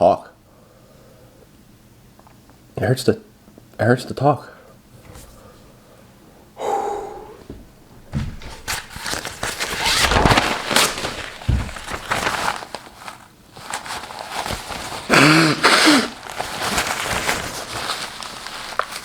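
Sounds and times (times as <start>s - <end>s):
hissing breath: 5.3s - 7.6s, 15.1s - 16.2s.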